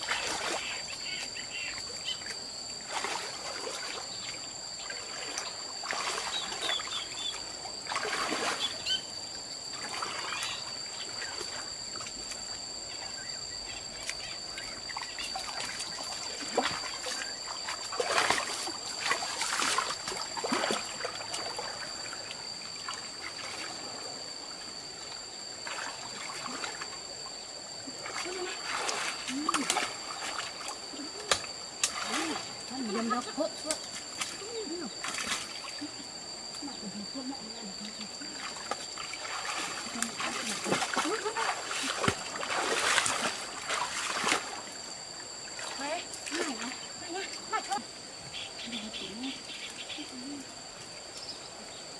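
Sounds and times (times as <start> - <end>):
water splashing and trickling: 0.0 - 9.0, 9.7 - 12.4, 13.9 - 24.1, 25.0 - 27.1, 27.9 - 36.0, 37.5 - 48.1
high-pitched insect drone: 0.0 - 51.9.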